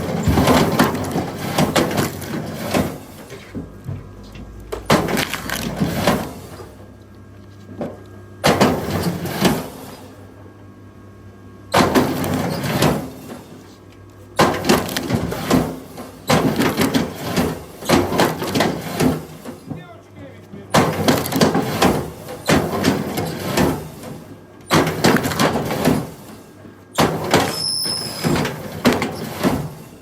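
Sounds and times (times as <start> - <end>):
firewood cracking and splintering: 4.9 - 5.9.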